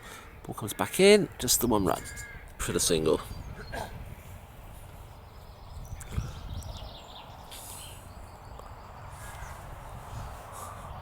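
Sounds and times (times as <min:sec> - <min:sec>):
faint birds calling: 0:00.0 - 0:11.0
wind rumbling on microphone: 0:01.4 - 0:11.0.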